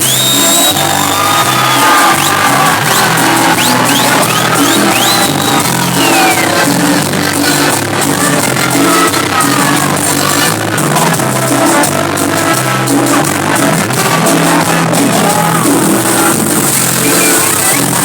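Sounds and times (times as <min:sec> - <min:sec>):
crowd voices: 0:00.0 - 0:18.0
live band music: 0:00.0 - 0:18.0.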